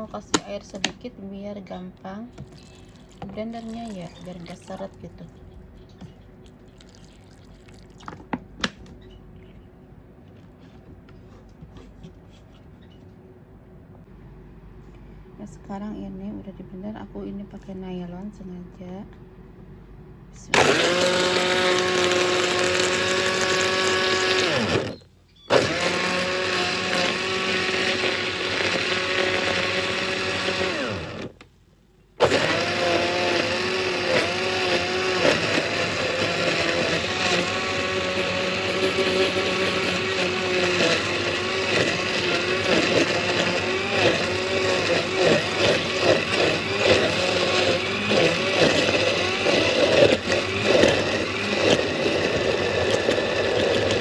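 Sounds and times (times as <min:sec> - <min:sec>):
electric blender running: 0:02.4 - 0:05.4, 0:20.5 - 0:31.4, 0:32.2 - 0:54.0.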